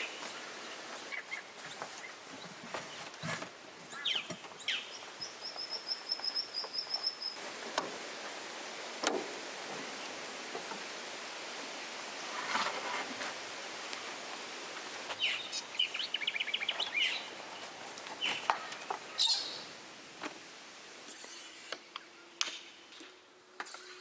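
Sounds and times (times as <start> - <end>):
wild birds calling: 0.0 - 7.4, 15.1 - 19.8
outdoor hiss: 0.0 - 24.0.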